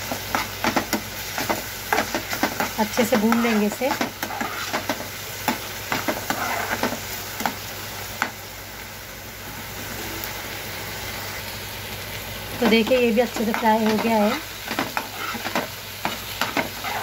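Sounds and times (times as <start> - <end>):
onion sizzling in hot oil: 0.0 - 17.0
steel spoon scraping pan: 1.4 - 5.0, 5.9 - 7.0, 12.6 - 17.0.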